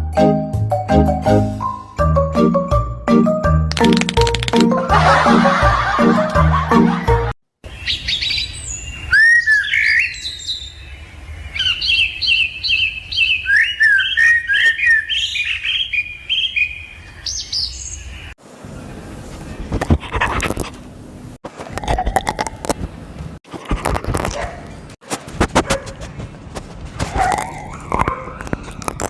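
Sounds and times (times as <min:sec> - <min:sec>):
sharp clicks: 0:03.7 - 0:04.8
bird chirping and twittering: 0:07.7 - 0:18.4.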